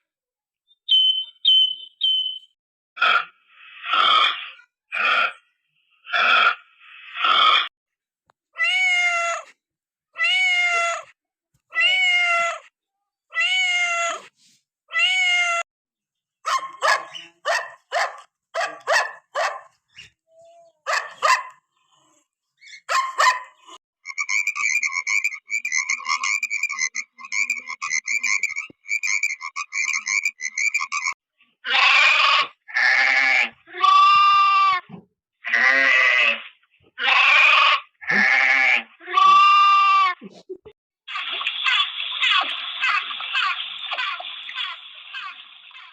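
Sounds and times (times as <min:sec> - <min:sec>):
animal crying: 0:08.6 - 0:09.5, 0:10.2 - 0:12.7, 0:24.0 - 0:36.4, 0:37.0 - 0:40.2
fast animal chattering: 0:24.0 - 0:31.2.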